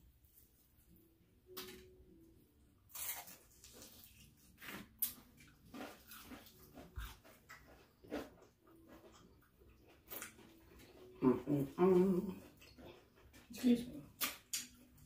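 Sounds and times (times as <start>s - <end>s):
crunching and chewing: 2.8s - 13.5s.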